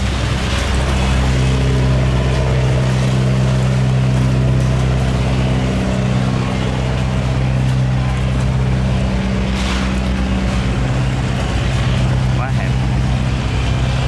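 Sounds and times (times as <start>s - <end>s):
boat engine humming: 0.0s - 14.0s
water and wind hiss: 0.0s - 14.0s.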